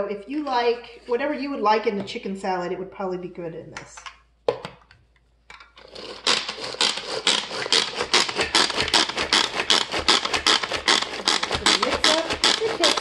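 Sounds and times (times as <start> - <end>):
hand food chopper clattering: 5.8 - 13.0.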